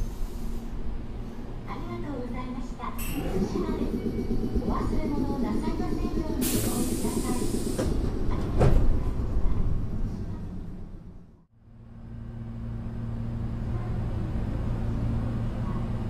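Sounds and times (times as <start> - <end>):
train low hum: 0.0 - 16.0
train clunks: 2.8 - 11.1.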